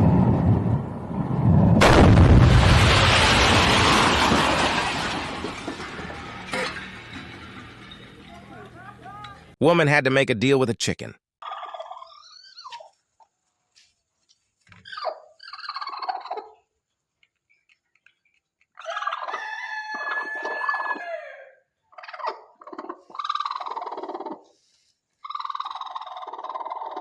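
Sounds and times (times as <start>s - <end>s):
chicken calling loudly: 18.8s - 24.5s.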